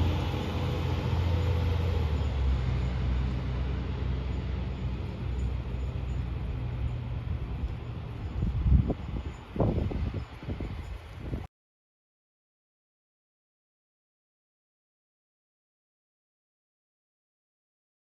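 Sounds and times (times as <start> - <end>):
diesel engine rumbling: 0.0 - 11.4.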